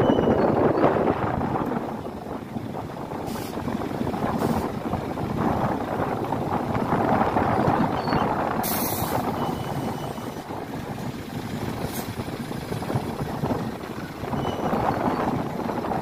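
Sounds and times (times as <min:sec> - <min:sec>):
heavy vehicle running: 0:00.0 - 0:16.0
air hiss: 0:08.6 - 0:09.4.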